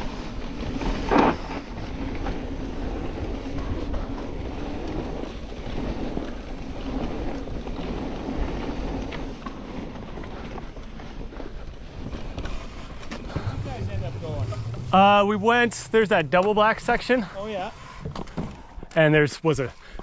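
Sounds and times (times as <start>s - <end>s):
bike rattles and ticks: 0.0s - 20.0s
bike tyres on dirt trail: 0.0s - 20.0s
wind buffeting microphone: 11.2s - 17.8s.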